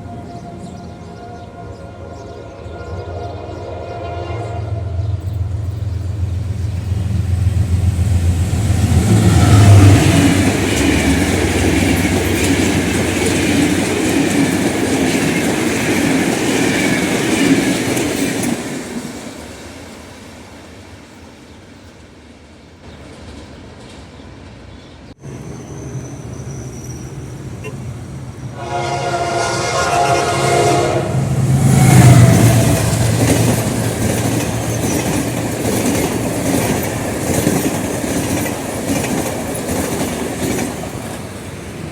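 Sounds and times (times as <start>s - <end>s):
locomotive horn blast: 0.0s - 5.6s, 27.5s - 33.0s
diesel locomotive passing: 0.0s - 41.9s
train wheels clickety-clack: 5.6s - 20.0s, 31.8s - 41.9s.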